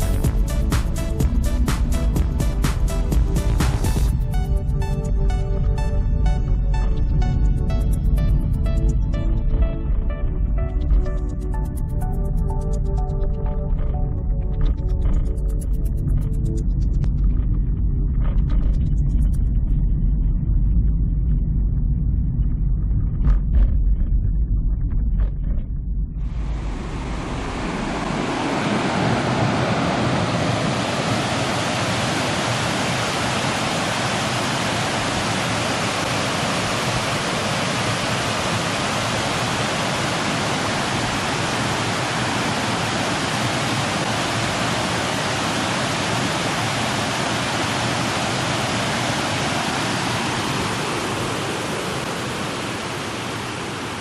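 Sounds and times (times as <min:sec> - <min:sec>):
running water rushing: 0:26.2 - 0:54.0.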